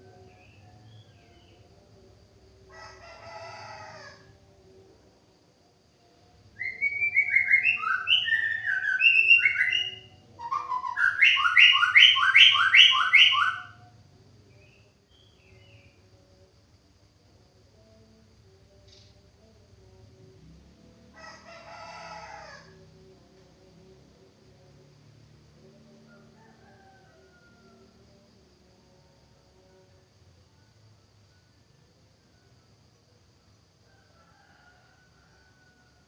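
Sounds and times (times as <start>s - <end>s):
faint rooster-like crow: 2.6s - 4.8s, 20.9s - 23.0s, 25.6s - 28.8s, 33.7s - 36.0s
songbird whistling varied phrases: 6.6s - 13.7s.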